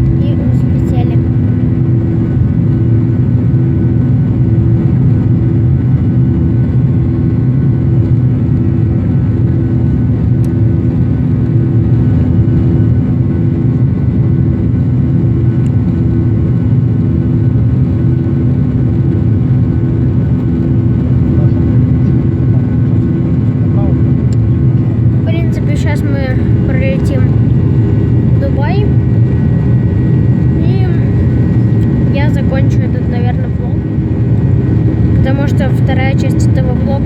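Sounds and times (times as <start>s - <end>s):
airliner cabin engine roar: 0.0s - 37.0s
throbbing hum: 0.0s - 37.0s.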